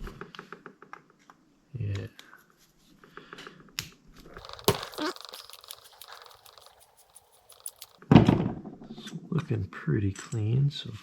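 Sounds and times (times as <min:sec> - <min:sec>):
small metal parts clicking: 0:04.4 - 0:08.0.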